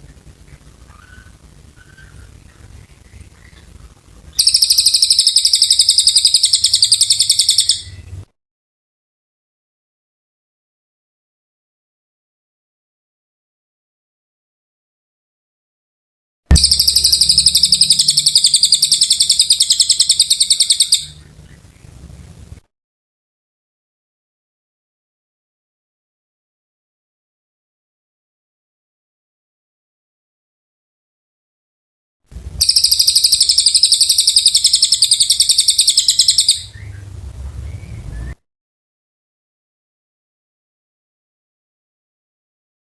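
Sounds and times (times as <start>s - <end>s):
songbird fast high trill: 4.4s - 8.1s, 16.5s - 21.4s, 32.6s - 38.4s
faint short bird chirps: 4.4s - 8.3s, 16.5s - 21.3s, 32.6s - 38.4s
low rumble: 16.5s - 22.6s, 36.7s - 38.4s.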